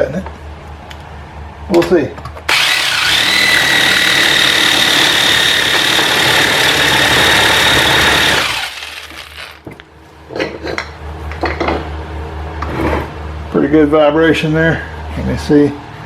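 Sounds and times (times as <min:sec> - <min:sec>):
saber saw cutting metal: 0:02.5 - 0:09.6.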